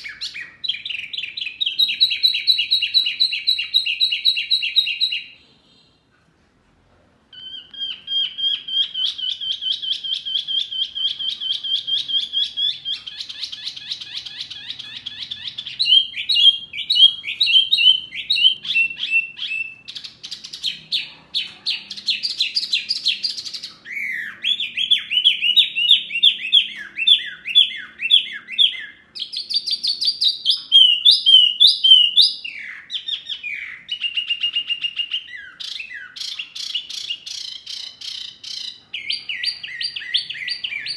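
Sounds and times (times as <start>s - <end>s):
songbird trilling and whistling: 0.0s - 5.4s, 7.3s - 40.9s.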